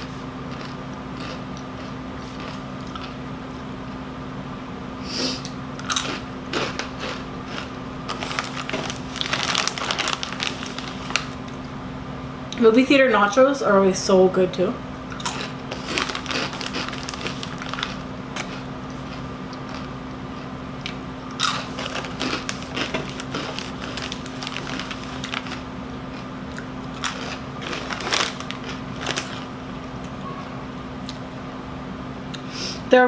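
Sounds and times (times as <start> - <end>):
crunchy chips being chewed: 0.0 - 3.6, 5.8 - 11.5, 15.1 - 30.2.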